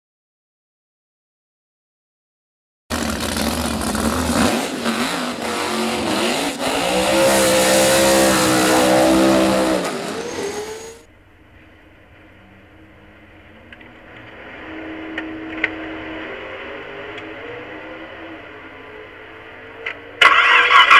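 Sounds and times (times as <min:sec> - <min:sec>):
engine idling: 0:02.9 - 0:07.0
engine revving loudly: 0:02.9 - 0:11.0
tyres screeching in burnout: 0:02.9 - 0:11.0.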